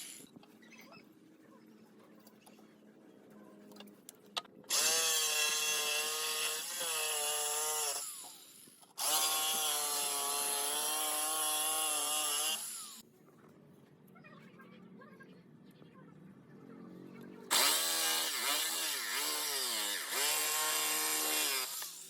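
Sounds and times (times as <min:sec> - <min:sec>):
power tool cutting wood: 0:04.7 - 0:13.0, 0:17.5 - 0:22.0.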